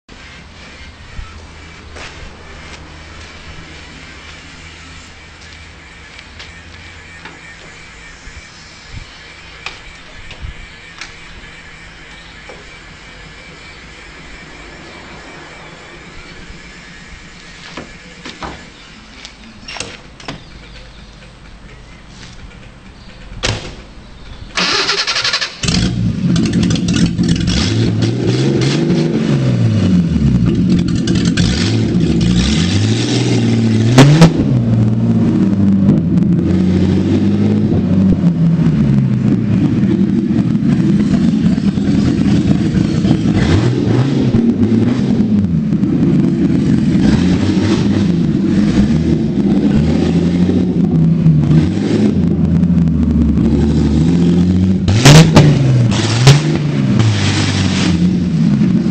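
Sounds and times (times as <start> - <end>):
engine starter cranking: 22.5 - 27.8
car engine revving: 24.6 - 58.9.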